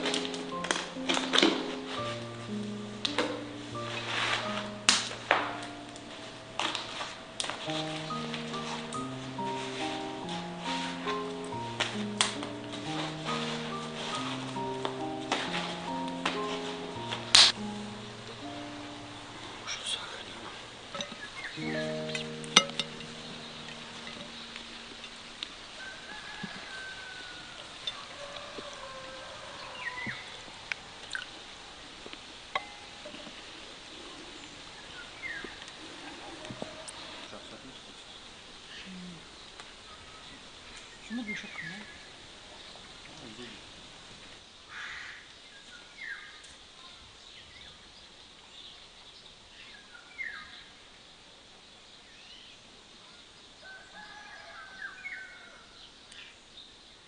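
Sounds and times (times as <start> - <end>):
faint outdoor hiss: 0.0 - 57.0
wild birds chirping: 0.0 - 57.0
wood fire pops: 3.0 - 9.3, 11.1 - 13.4.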